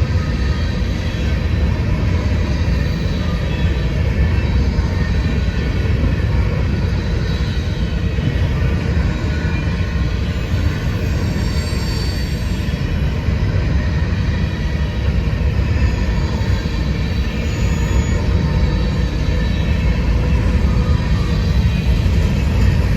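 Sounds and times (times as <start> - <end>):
freight train rumbling on rails: 0.0 - 22.9.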